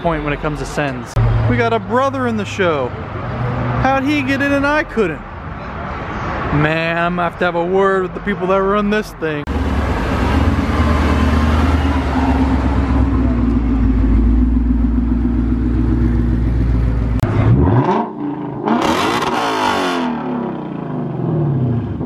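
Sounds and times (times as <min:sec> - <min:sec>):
car engine idling and revving: 0:00.8 - 0:05.1, 0:09.4 - 0:22.0.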